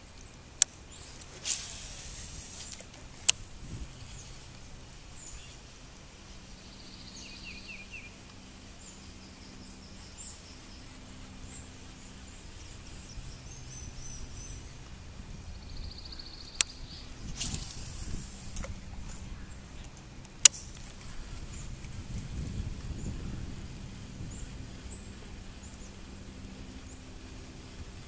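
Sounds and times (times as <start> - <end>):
faint steady background noise: 0.0 - 28.0
birds chirping and trilling: 8.8 - 21.8
sharp click: 17.4 - 18.8, 20.3 - 20.8.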